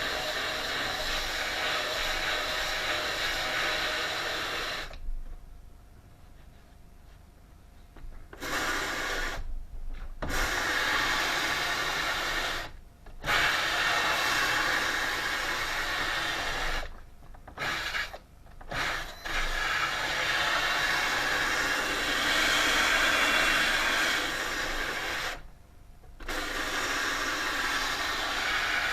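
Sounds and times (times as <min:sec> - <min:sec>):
power tool working wood: 0:00.0 - 0:05.0, 0:10.2 - 0:16.9, 0:17.6 - 0:25.4, 0:26.2 - 0:28.9.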